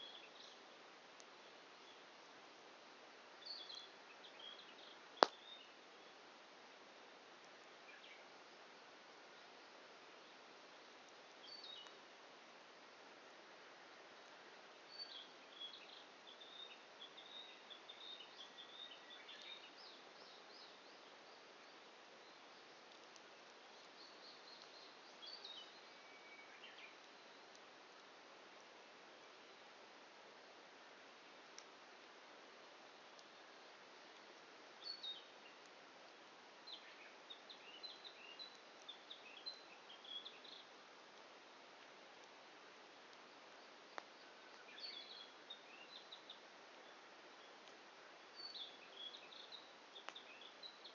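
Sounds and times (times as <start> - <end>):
faint steady hiss: 0.0 - 50.9
songbird twittering: 44.2 - 47.6.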